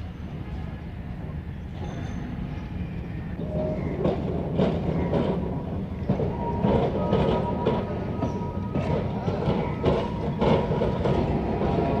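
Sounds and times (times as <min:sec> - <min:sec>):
electric tram rumbling: 0:00.0 - 0:12.0
tram wheels knocking and clattering: 0:03.4 - 0:12.0.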